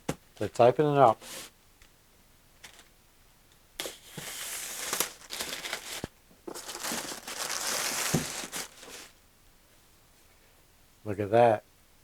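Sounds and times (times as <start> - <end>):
plastic bag crinkling: 4.2 - 9.2.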